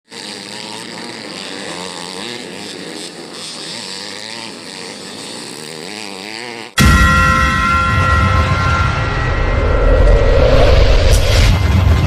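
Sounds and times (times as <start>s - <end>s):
motocross bike engines revving: 0.1s - 6.8s.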